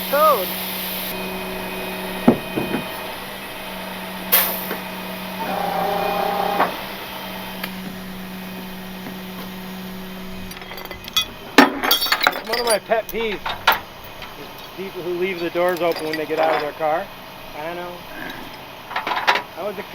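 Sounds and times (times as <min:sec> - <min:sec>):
truck engine idling: 0:00.0 - 0:19.9.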